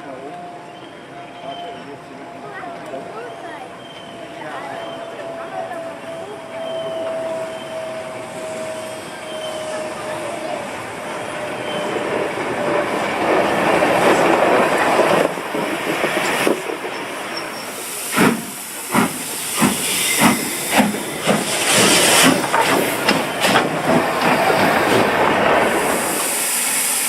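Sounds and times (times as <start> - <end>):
steam locomotive chuffing: 3.1 - 27.0
steam hissing: 7.0 - 27.0.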